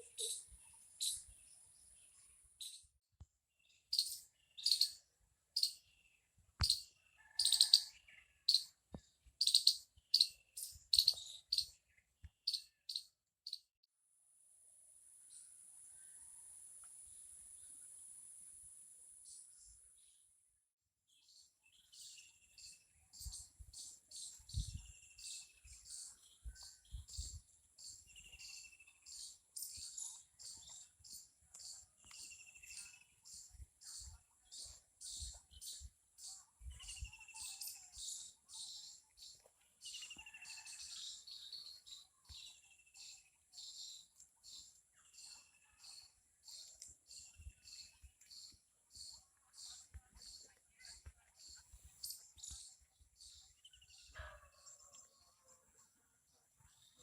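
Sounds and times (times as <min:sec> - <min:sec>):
birds chirping: 0:03.6 - 0:05.0, 0:05.6 - 0:13.6.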